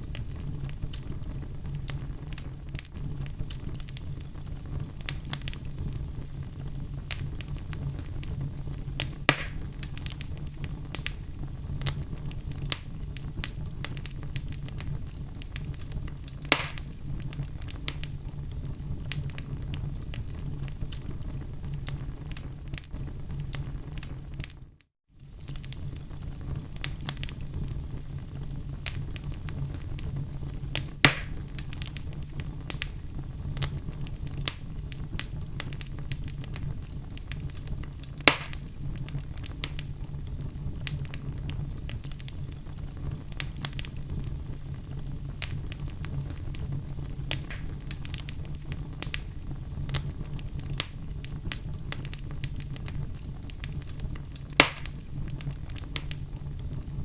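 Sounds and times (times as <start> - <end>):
low rumble of flame: 0.0 - 57.0
wood fire crackling: 0.0 - 57.0
sharp pops of wood: 9.3 - 9.6, 16.5 - 16.8, 31.1 - 31.3, 38.3 - 38.6, 54.6 - 54.9.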